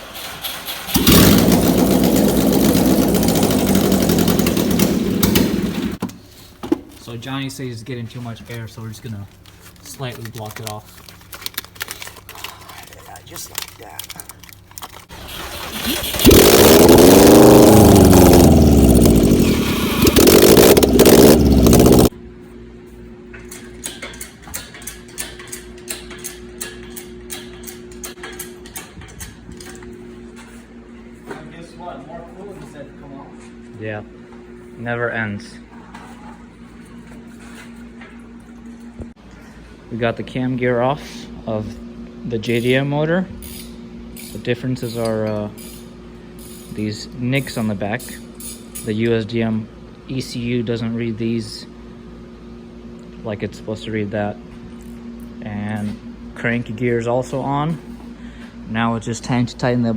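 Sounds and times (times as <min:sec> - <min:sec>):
car engine starting and running: 0:00.0 - 0:06.1, 0:15.1 - 0:22.1
steady hum: 0:15.5 - 0:24.2.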